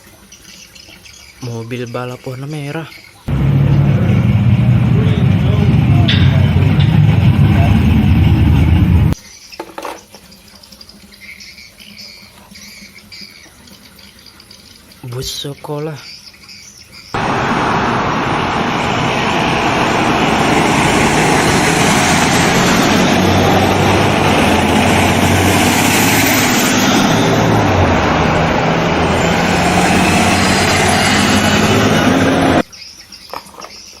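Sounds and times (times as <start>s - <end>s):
motor vehicle engine and road noise: 3.3s - 9.2s, 17.2s - 32.7s.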